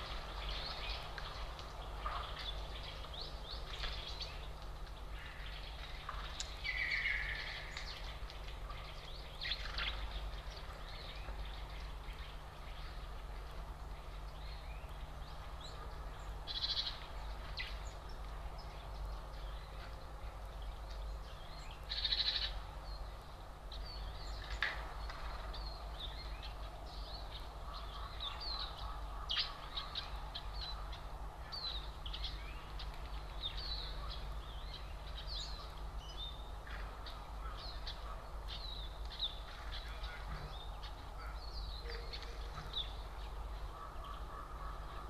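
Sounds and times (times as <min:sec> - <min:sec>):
songbirds chirping: 0:00.0 - 0:45.0.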